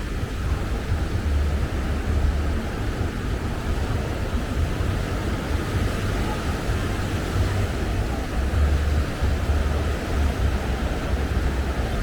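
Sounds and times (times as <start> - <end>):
ocean surf: 0.0 - 12.0
wind buffeting microphone: 0.0 - 12.0.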